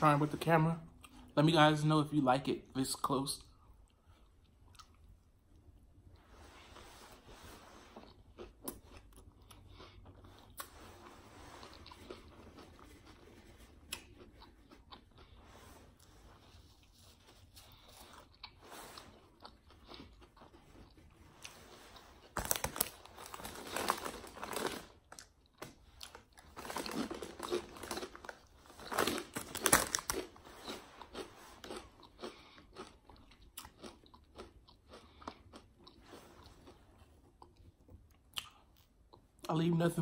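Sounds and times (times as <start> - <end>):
person chewing a sandwich: 3.5 - 39.5.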